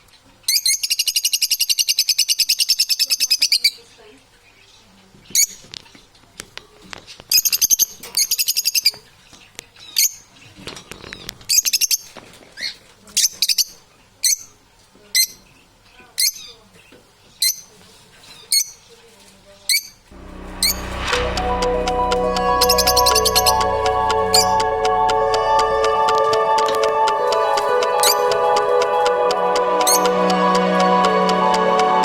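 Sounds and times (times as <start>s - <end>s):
music: 20.2s - 32.0s.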